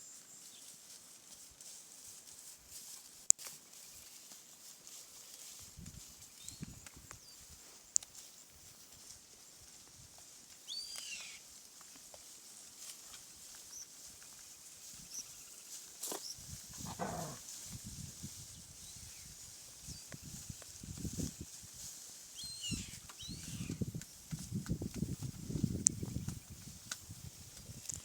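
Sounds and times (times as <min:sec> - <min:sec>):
falling animal call: 0:16.8 - 0:17.4.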